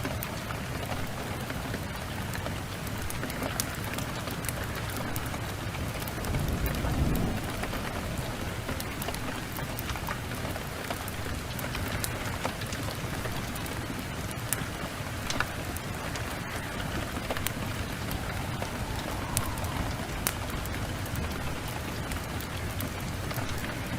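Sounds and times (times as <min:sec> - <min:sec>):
steady rain: 0:00.0 - 0:23.9
wood fire crackling: 0:00.0 - 0:23.9
low rumble: 0:16.4 - 0:23.6.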